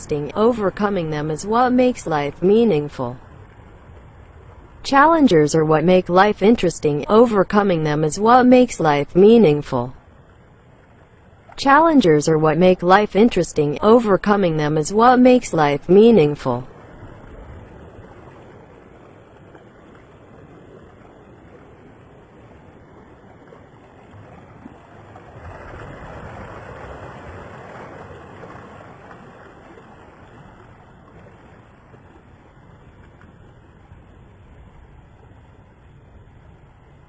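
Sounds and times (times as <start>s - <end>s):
waves rushing around ship: 11.6s - 37.0s.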